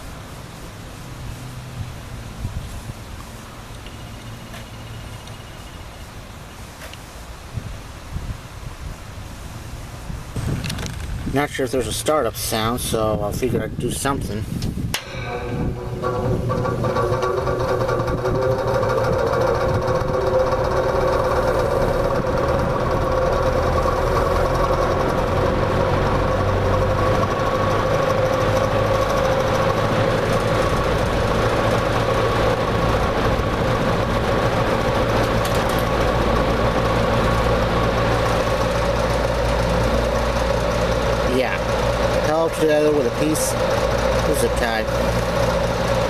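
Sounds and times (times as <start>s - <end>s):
box fan motor humming: 14.2s - 46.0s.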